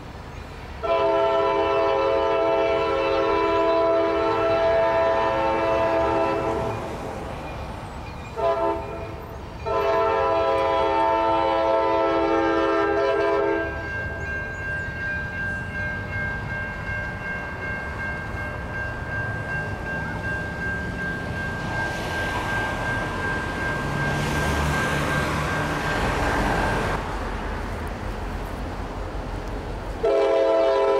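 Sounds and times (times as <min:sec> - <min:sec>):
train rumble: 0:00.0 - 0:30.9
locomotive air horn blasts: 0:00.8 - 0:06.8, 0:08.4 - 0:13.9, 0:30.0 - 0:30.9.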